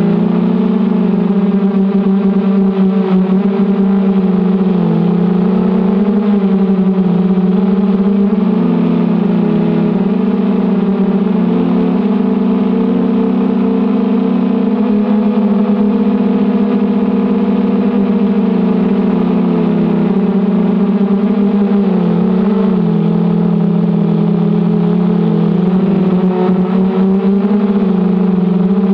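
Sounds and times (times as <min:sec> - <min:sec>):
quadcopter propellers buzzing: 0:00.0 - 0:28.9.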